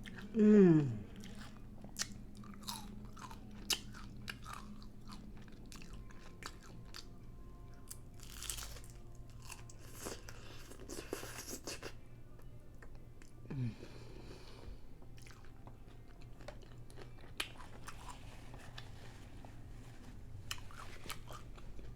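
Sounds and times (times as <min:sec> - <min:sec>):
faint low hum: 0:00.0 - 0:21.9
close chewing and wet smacks: 0:01.2 - 0:07.1, 0:15.1 - 0:18.9.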